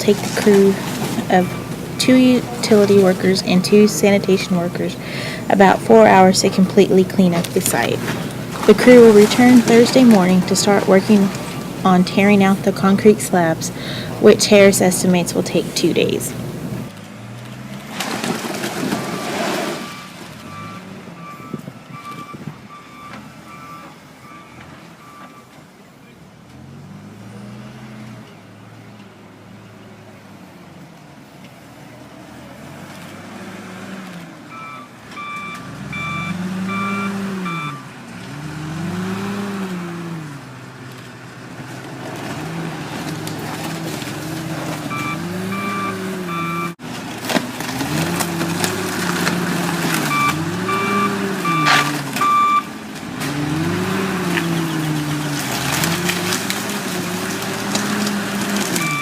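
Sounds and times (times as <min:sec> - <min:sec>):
reversing beeper: 0:00.0 - 0:16.4, 0:19.1 - 0:25.5, 0:34.5 - 0:37.9, 0:44.9 - 0:46.8, 0:50.0 - 0:52.7, 0:58.8 - 0:59.0
diesel engine revving: 0:00.0 - 0:25.2, 0:26.5 - 0:28.9, 0:32.0 - 0:59.0.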